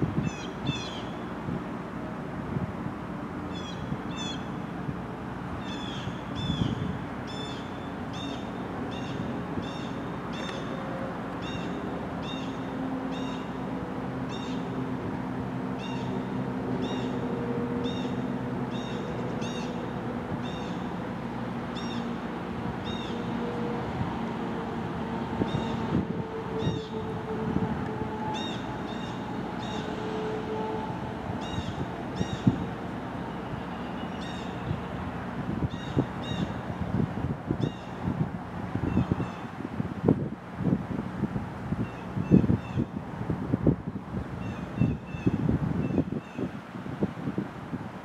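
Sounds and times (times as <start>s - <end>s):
freight train rumbling: 8.8s - 35.6s.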